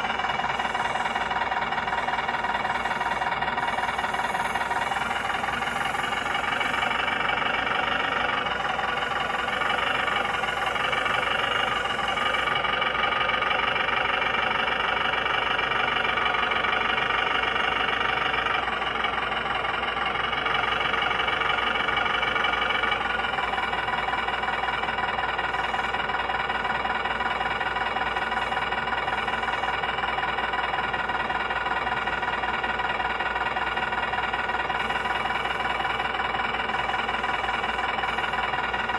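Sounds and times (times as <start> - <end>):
model truck engine running: 0.0 - 38.9.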